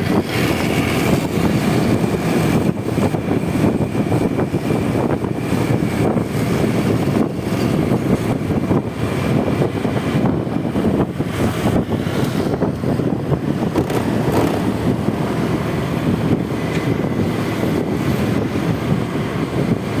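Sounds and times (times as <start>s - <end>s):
road noise: 0.0s - 20.0s
scooter engine: 0.0s - 20.0s
wind buffeting microphone: 0.0s - 20.0s.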